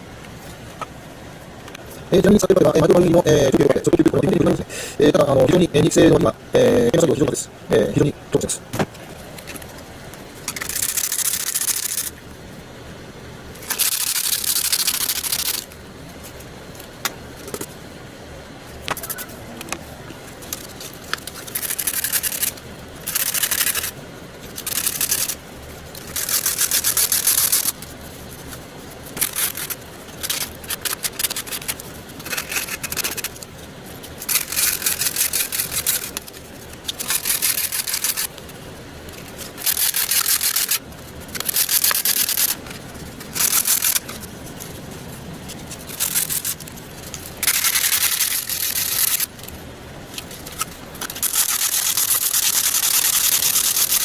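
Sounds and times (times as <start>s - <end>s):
hand sanding strokes: 51.2s - 54.0s.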